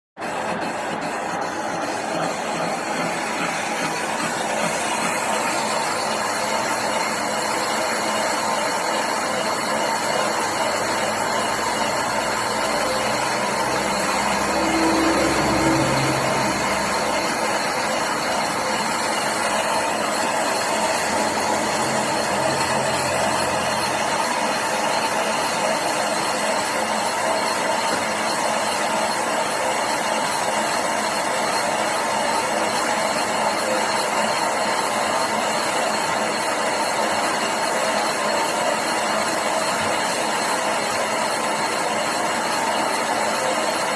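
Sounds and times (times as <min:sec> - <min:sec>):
lathe whirring: 0:00.2 - 0:43.9
low tone: 0:11.5 - 0:24.8.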